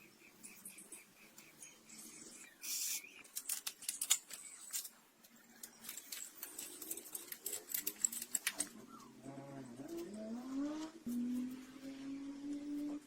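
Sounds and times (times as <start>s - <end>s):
hand tools clinking on metal: 5.8s - 8.8s.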